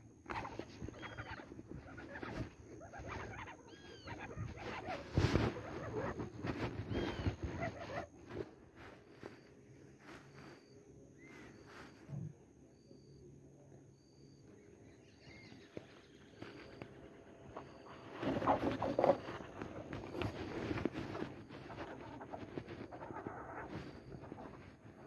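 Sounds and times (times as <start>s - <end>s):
faint birdsong: 0.0s - 25.0s.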